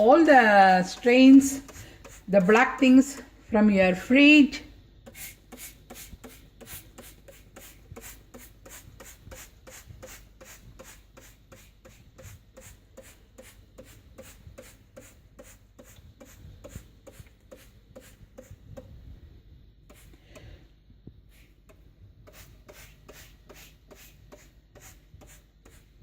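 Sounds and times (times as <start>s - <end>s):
spray bottle hissing sprays: 0.8s - 2.6s, 5.0s - 18.6s, 19.9s - 20.4s, 21.3s - 21.6s, 22.2s - 26.0s.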